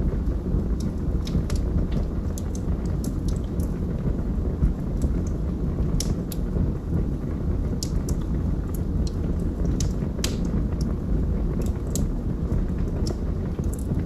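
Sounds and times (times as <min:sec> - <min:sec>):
log fire crackling: 0:00.0 - 0:14.0.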